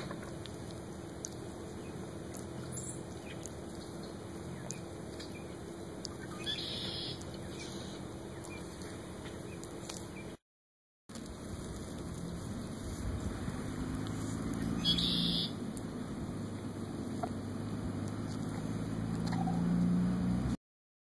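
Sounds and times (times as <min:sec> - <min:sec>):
tortoise chewing crunching clicks: 0:00.0 - 0:10.4, 0:11.1 - 0:19.9
bright rustle: 0:11.1 - 0:19.8.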